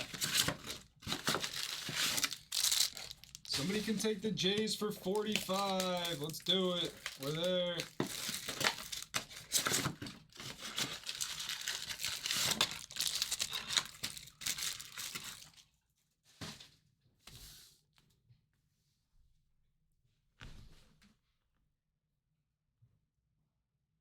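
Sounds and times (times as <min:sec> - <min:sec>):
packaging rustling: 0:00.0 - 0:15.6
packaging tearing and crinkling: 0:00.0 - 0:15.6.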